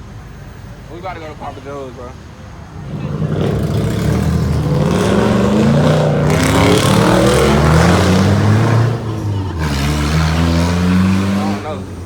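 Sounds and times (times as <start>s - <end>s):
truck engine revving: 2.7s - 12.0s.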